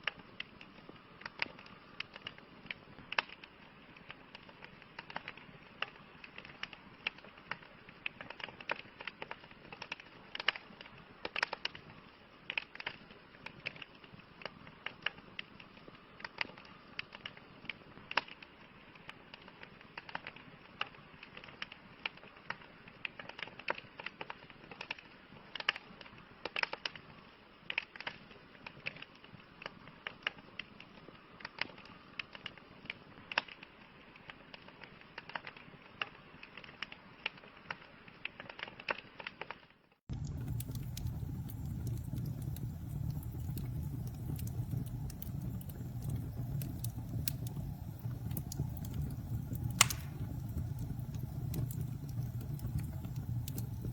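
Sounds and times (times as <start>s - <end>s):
wood fire crackling and popping: 0.0s - 53.9s
low roar of flames: 40.1s - 53.9s.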